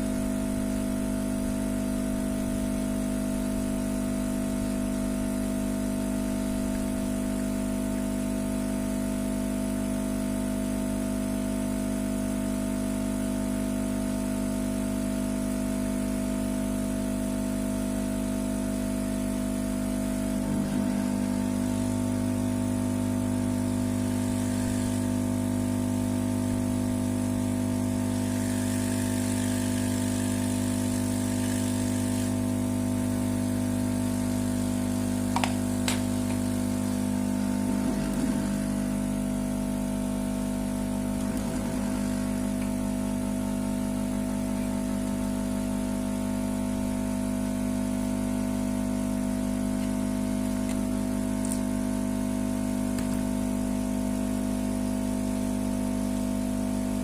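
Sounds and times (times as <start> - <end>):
machine hum: 17.2 - 57.0.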